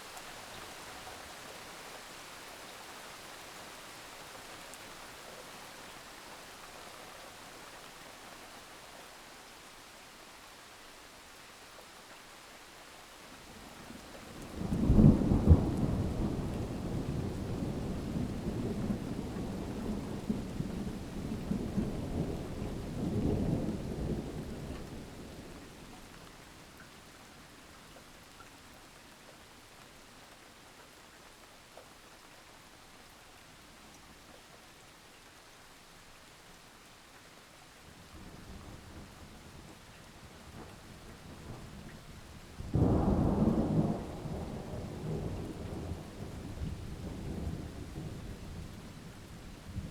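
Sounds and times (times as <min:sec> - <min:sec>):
steady rain falling: 0:00.0 - 0:49.9
thunder rumbling: 0:42.7 - 0:48.7.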